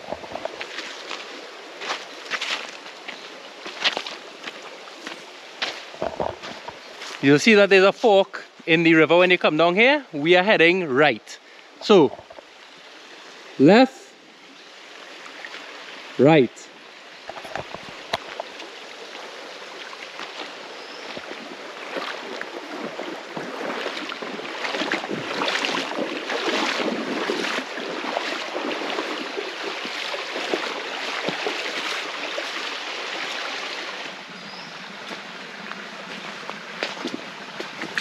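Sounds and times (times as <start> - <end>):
river running over rocks: 0.0 - 38.0
splashes and knocks: 5.9 - 6.8, 17.3 - 18.7, 21.1 - 33.4, 36.8 - 38.0.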